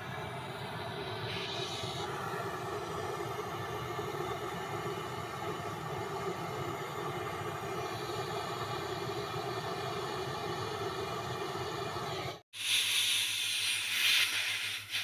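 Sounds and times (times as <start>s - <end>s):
torch flame burning: 0.0s - 15.0s
loud gas hiss: 12.6s - 15.0s.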